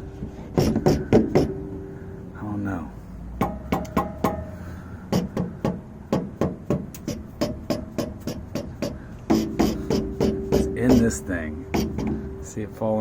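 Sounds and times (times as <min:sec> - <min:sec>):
sharp metallic clanks rattling: 0:03.4 - 0:12.8.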